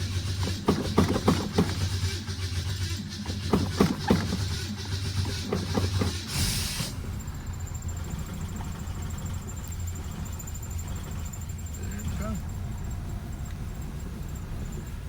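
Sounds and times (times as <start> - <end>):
sharp engine knocks: 0.0 - 11.5
car engine idling: 0.0 - 15.0
short hiss: 6.1 - 7.2.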